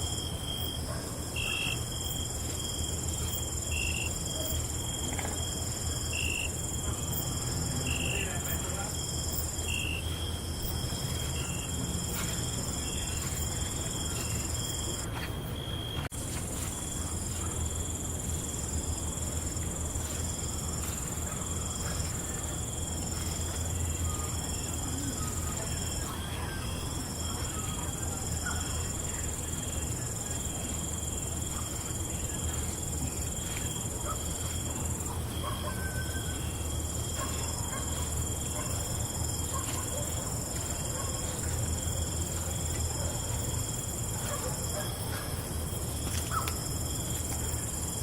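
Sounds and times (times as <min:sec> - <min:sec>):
insect calls chirping: 0:00.0 - 0:15.0
crickets trilling: 0:00.0 - 0:48.0.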